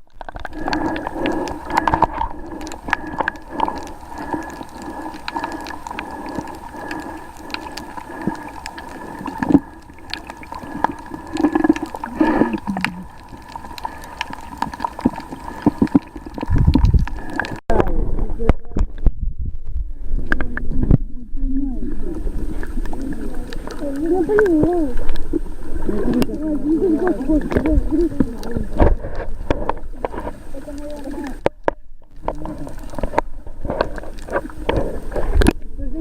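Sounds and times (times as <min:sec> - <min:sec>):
clicks and crackles: 0:00.0 - 0:21.1, 0:22.1 - 0:35.7
droning underwater hum: 0:00.0 - 0:36.0
gurgling water: 0:00.0 - 0:36.0
low rumble: 0:16.4 - 0:30.0.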